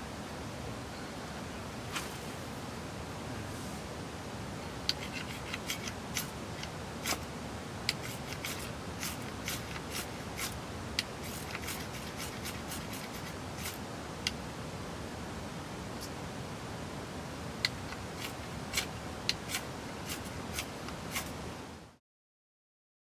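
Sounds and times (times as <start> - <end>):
fire-starter rod scraping: 4.9 - 7.3, 7.9 - 13.8, 17.7 - 21.4.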